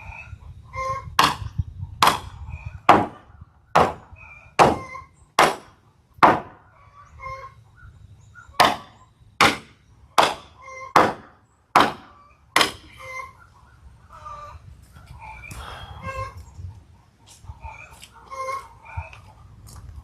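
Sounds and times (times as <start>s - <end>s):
chickens clucking: 0.0s - 19.9s
hammer blows: 1.2s - 6.6s.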